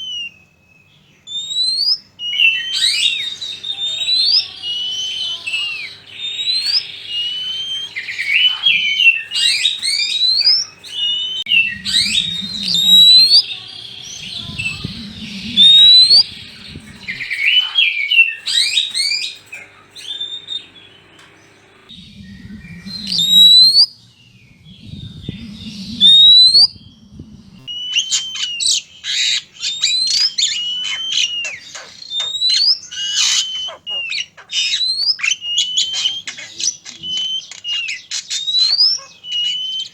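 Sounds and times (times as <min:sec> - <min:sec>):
birds whistling and chattering: 0:00.0 - 0:39.9
low rumbling noise: 0:03.6 - 0:17.8, 0:19.4 - 0:28.0.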